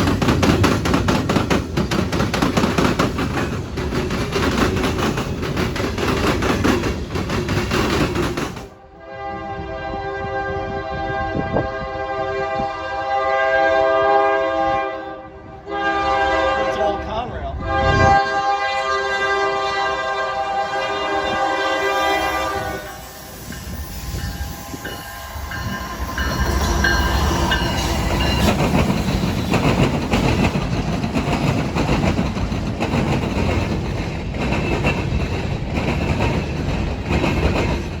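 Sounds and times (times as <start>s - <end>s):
wheels clattering over rail joints: 0.0s - 8.7s, 23.5s - 38.0s
train rolling rumble: 0.0s - 38.0s
locomotive air horn chord: 8.8s - 23.2s
high wheel squeals: 22.1s - 29.6s.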